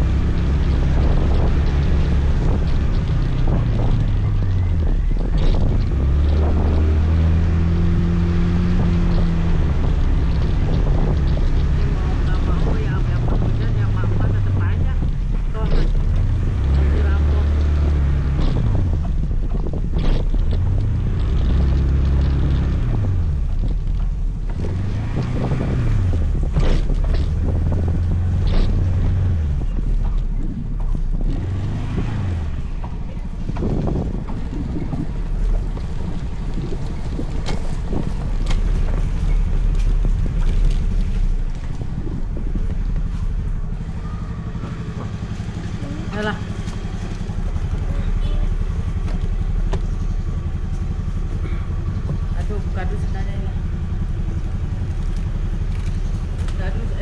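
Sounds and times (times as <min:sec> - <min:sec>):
scooter engine revving: 0:00.0 - 0:57.0
wind rushing over microphone: 0:00.0 - 0:57.0.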